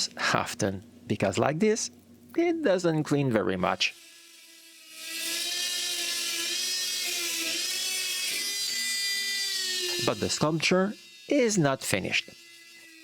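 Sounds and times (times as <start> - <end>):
rotary tool wire brush whining: 3.5 - 13.0.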